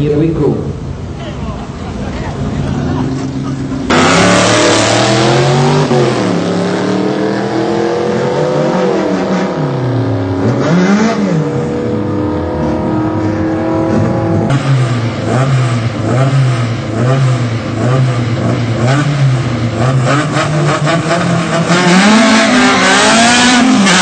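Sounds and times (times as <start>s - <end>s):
car engine accelerating hard: 1.8s - 24.0s.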